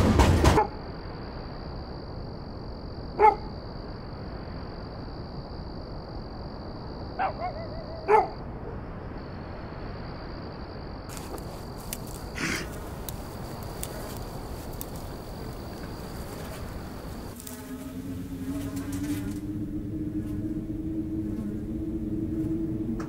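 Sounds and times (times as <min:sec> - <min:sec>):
high insect trill: 0:00.6 - 0:23.0
dog barking: 0:03.2 - 0:03.5, 0:07.2 - 0:08.8.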